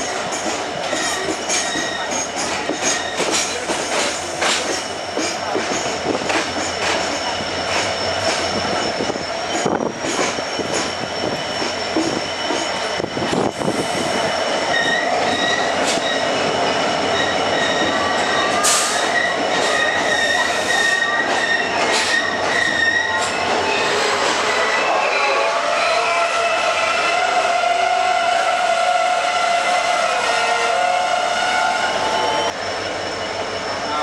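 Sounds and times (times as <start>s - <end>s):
rail joint clicks: 0.0s - 23.6s
train wheels rumbling on rails: 0.0s - 34.0s
high wheel squeal: 6.8s - 34.0s.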